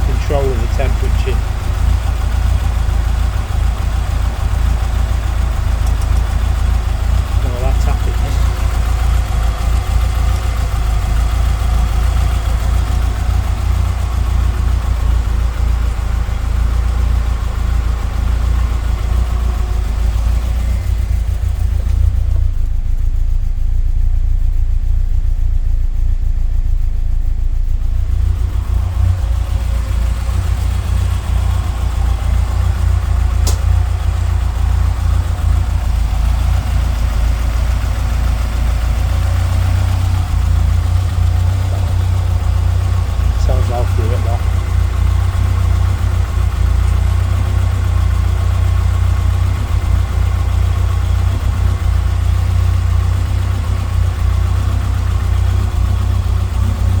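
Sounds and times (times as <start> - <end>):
car engine idling: 0.0 - 57.0
sharp click: 33.4 - 33.8.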